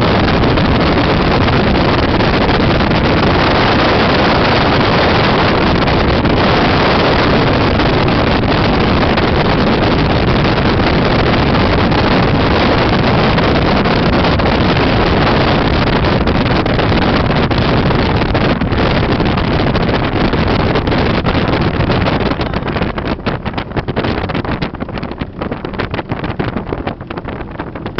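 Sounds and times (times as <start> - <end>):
boat motor running: 0.0 - 27.9
wind on microphone: 0.0 - 27.9.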